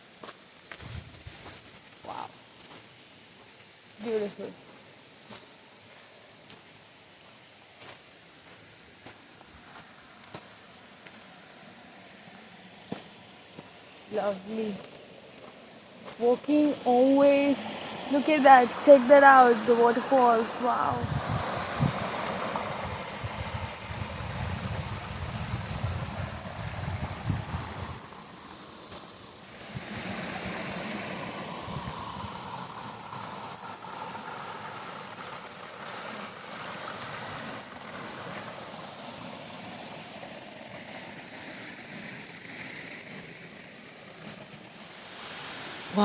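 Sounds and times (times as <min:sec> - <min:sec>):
wind gusts on microphone: 0:00.8 - 0:01.6, 0:16.2 - 0:46.0
waterfall rushing: 0:44.8 - 0:46.0.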